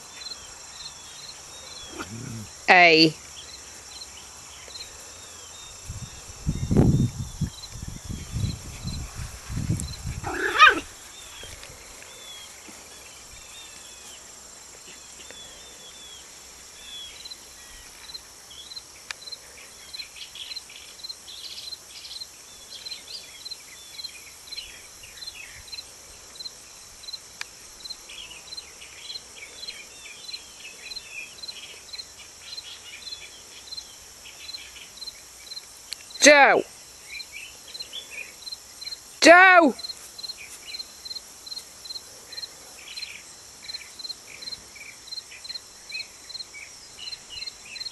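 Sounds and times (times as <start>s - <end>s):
insect hum: 0.0s - 47.9s
dogs growling: 1.7s - 2.6s, 10.2s - 10.9s
dog yelp: 10.2s - 10.9s.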